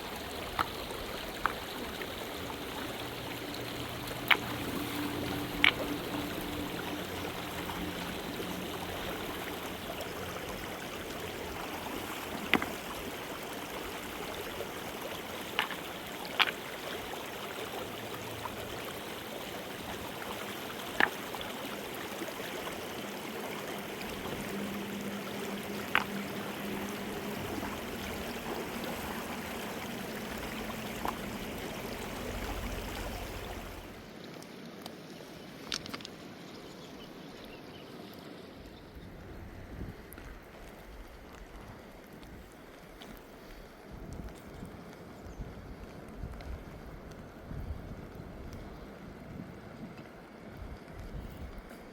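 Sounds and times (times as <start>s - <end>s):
river water rushing: 0.0s - 34.2s.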